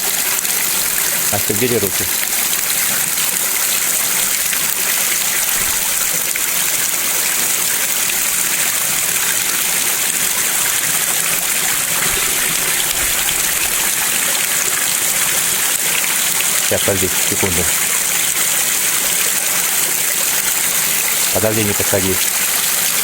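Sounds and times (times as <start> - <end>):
stream rushing: 0.0 - 23.0.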